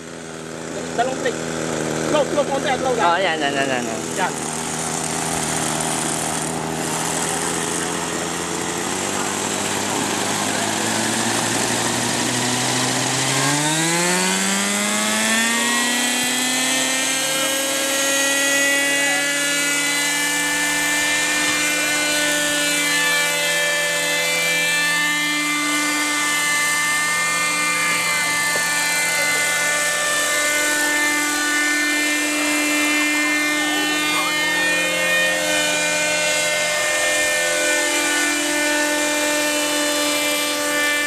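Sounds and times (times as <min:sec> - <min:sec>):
model helicopter engine whine: 0:00.0 - 0:41.0.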